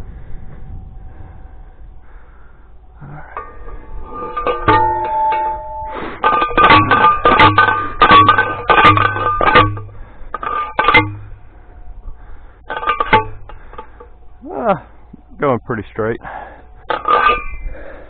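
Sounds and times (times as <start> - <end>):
post driver clanging on metal: 3.2 - 11.4, 12.7 - 14.2, 16.8 - 17.7.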